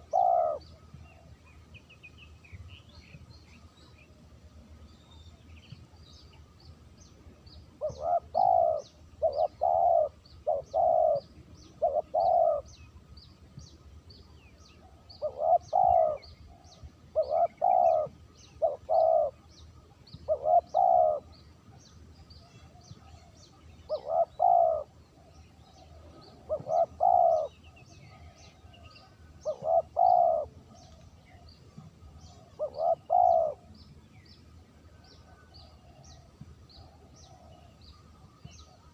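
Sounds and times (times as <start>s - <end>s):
dove cooing: 0.0s - 1.3s, 7.8s - 12.8s, 14.8s - 19.5s, 20.1s - 21.4s, 22.4s - 31.4s, 32.0s - 33.8s.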